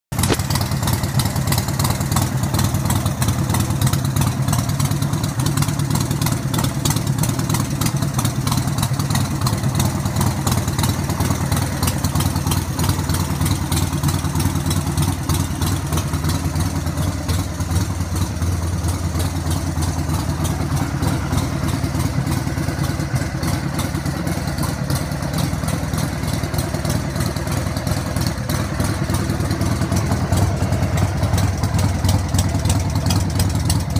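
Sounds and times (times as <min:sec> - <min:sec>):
motorcycle engine idling: 0:00.1 - 0:33.9.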